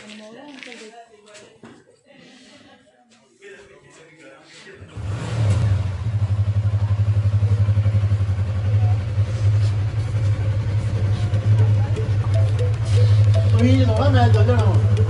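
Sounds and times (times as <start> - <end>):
motorcycle engine running: 5.0 - 15.0.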